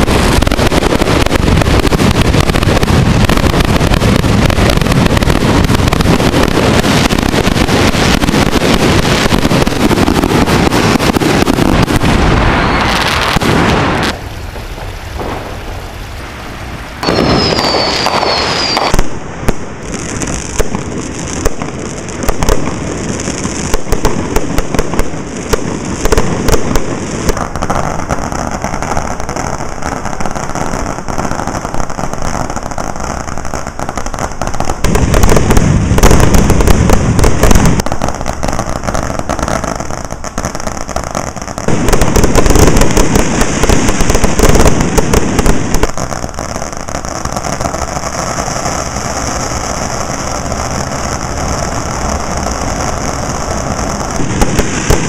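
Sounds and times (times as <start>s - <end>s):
firework whistle: 0.0s - 21.5s
firecrackers crackling and popping: 0.0s - 55.0s
rapid firework bangs: 0.0s - 55.0s.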